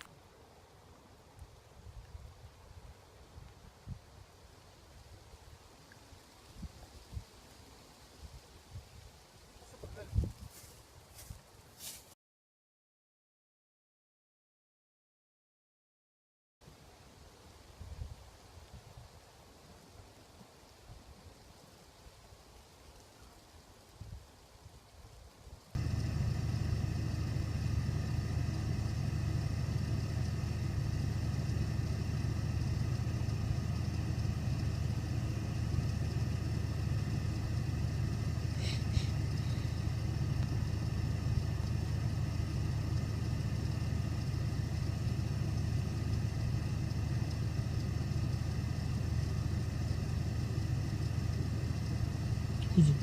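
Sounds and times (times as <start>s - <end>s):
truck engine running: 25.8s - 53.0s.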